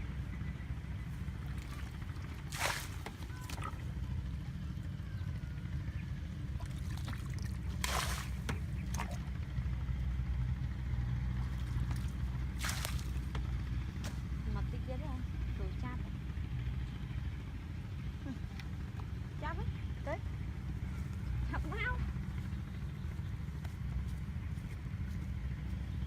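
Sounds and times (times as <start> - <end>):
water splashing and sloshing: 1.1 - 4.6, 6.5 - 9.6, 11.3 - 14.4.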